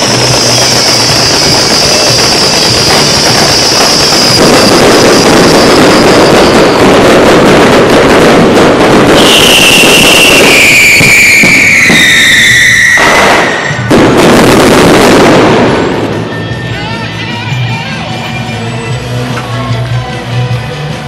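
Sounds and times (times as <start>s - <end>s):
whistling firework shells: 0.0s - 16.4s
fireworks crackling and popping: 0.0s - 16.8s.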